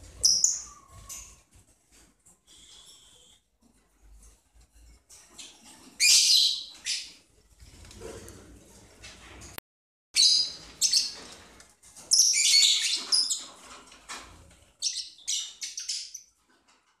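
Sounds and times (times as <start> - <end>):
lovebirds chirping: 0.2 - 1.4, 14.8 - 16.3.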